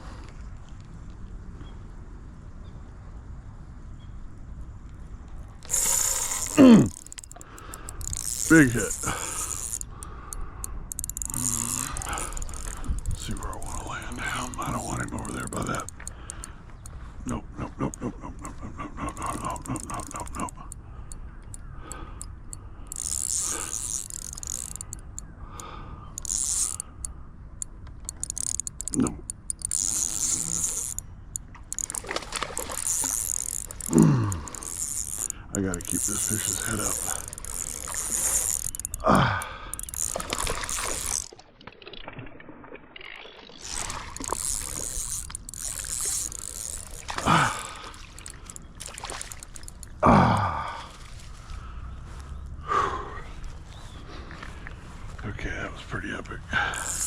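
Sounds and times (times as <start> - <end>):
fishing reel ticking: 5.4 - 17.2, 18.5 - 42.2, 43.0 - 50.5, 56.6 - 57.0
fish splashing in water: 31.5 - 34.9, 40.0 - 50.0.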